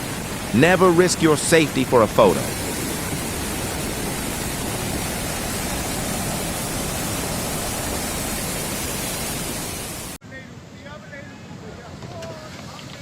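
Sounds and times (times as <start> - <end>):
steady rushing noise: 0.0 - 10.2.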